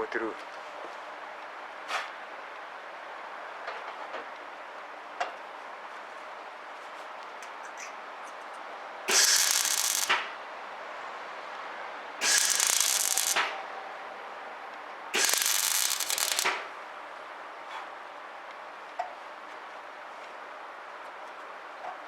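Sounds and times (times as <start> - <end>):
welder arc crackling: 9.1 - 10.4, 12.2 - 13.5, 15.2 - 16.7.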